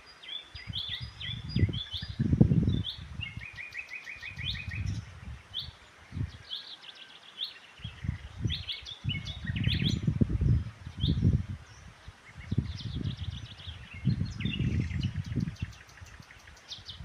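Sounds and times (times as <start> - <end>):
songbirds chirping: 0.0 - 17.0
low rumbling gusts: 0.6 - 3.5, 7.8 - 15.8.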